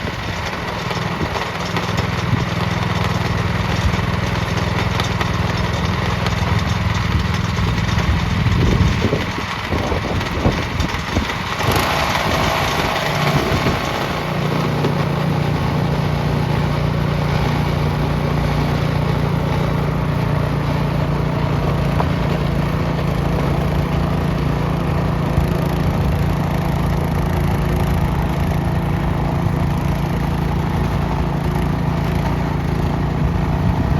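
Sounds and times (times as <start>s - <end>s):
snowblower engine running: 0.0s - 33.9s
rushing noise: 6.4s - 23.8s.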